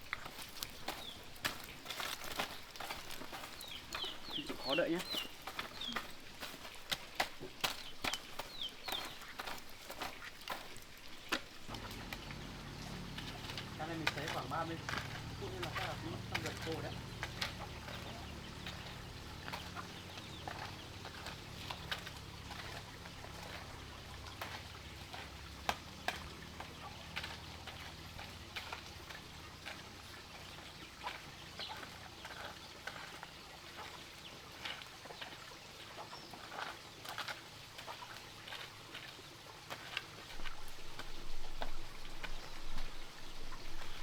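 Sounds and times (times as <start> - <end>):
chickens clucking: 11.7 - 23.7.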